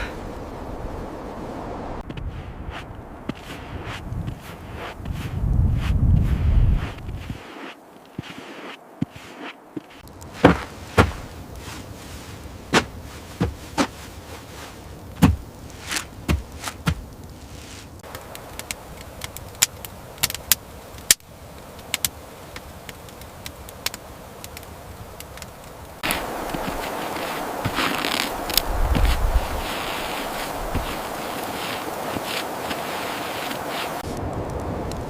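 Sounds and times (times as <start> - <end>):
knocks and thuds: 15.2 - 15.4.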